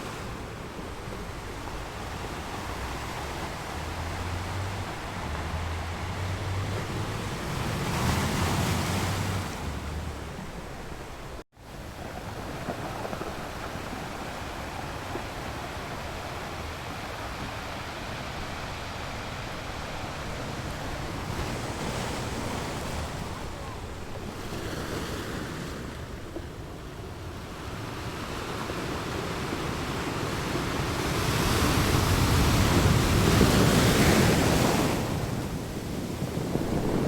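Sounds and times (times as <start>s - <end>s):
sea waves washing on shore: 0.0s - 37.0s
wind rumble on microphone: 0.0s - 37.0s.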